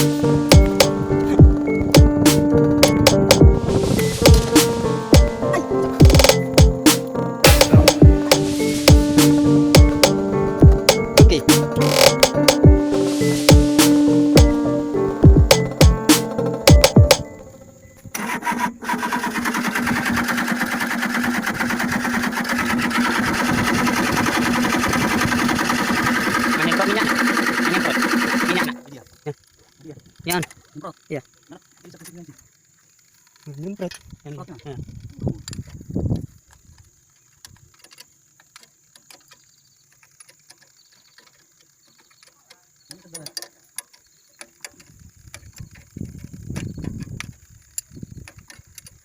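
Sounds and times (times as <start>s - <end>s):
hand tools clicking and tapping: 0.0s - 1.0s, 1.9s - 3.5s, 6.0s - 12.7s, 15.4s - 17.2s.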